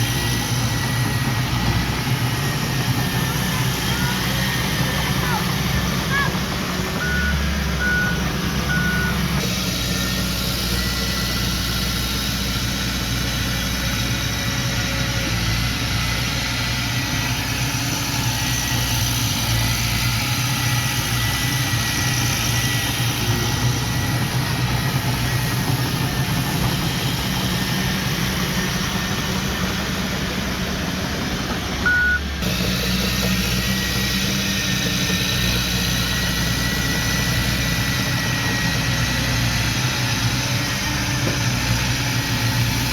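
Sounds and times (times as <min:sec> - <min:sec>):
heavy diesel engine running: 0:00.0 - 0:42.9
reverse alarm beep: 0:07.0 - 0:09.2, 0:31.9 - 0:32.3.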